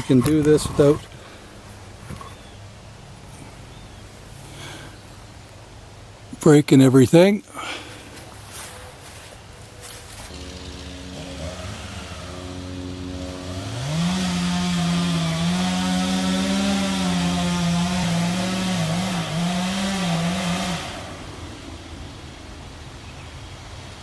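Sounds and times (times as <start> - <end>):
chainsaw idling and revving: 9.8 - 21.8.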